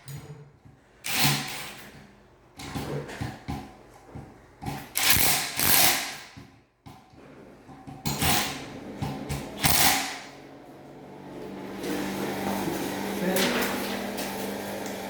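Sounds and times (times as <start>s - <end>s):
fan parts scraping and clicking: 11.8s - 15.0s.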